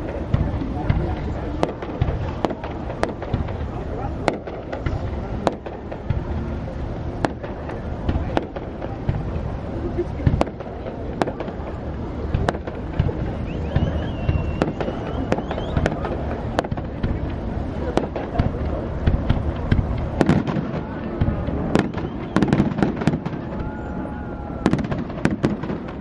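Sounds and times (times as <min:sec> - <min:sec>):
fireworks bangs: 0:00.0 - 0:26.0
low rumble of bursts: 0:00.0 - 0:26.0
fireworks rising whistles: 0:13.0 - 0:17.0, 0:21.6 - 0:26.0.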